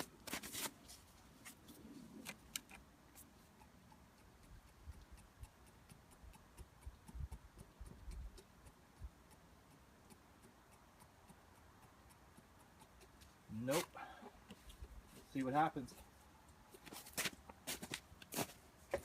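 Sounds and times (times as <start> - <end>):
faint regular ticking: 2.2 - 18.3.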